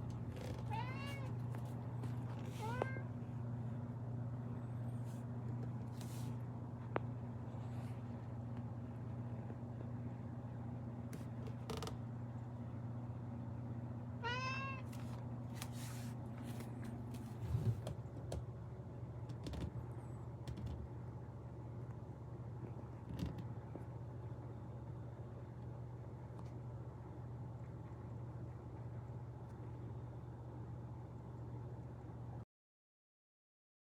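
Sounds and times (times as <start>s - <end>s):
steady low hum: 0.0s - 32.4s
cat meowing: 0.4s - 1.4s, 14.2s - 14.9s.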